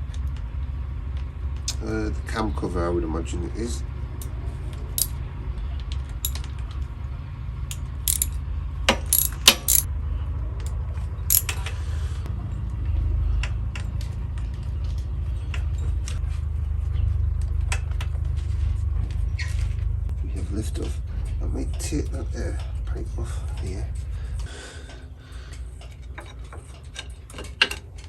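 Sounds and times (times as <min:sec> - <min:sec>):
metal hand tools clinking on bolts: 0:08.1 - 0:08.4, 0:09.1 - 0:09.9, 0:11.3 - 0:11.6
sharp metallic knocks: 0:08.1 - 0:08.4, 0:09.1 - 0:09.9, 0:11.3 - 0:11.6.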